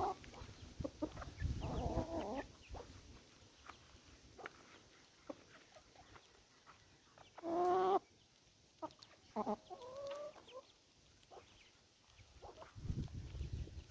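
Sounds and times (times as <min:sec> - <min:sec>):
chicken calling: 0:00.0 - 0:03.0, 0:07.2 - 0:08.1, 0:08.8 - 0:10.7
chicken clucking: 0:00.0 - 0:13.8.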